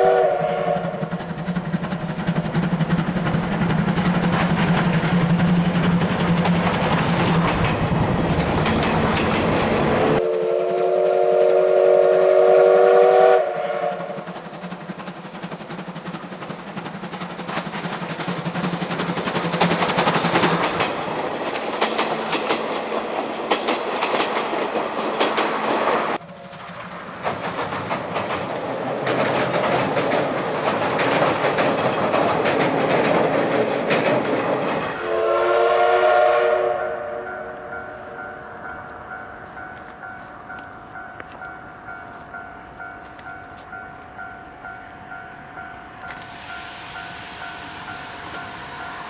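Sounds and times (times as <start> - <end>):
steam whistle blast: 0.0 - 1.1, 10.2 - 14.3, 34.8 - 38.2, 46.1 - 49.0
steam locomotive exhaust chuffs: 0.0 - 49.0
wheels clattering over rail joints: 0.9 - 10.2, 14.3 - 35.0.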